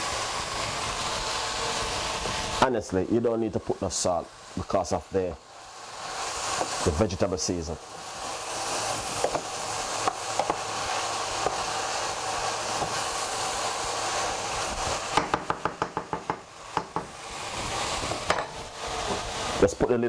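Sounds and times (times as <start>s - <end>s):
vegetables sizzling in frying pan: 0.0s - 20.0s
wooden spoon knocking pan: 15.2s - 17.1s.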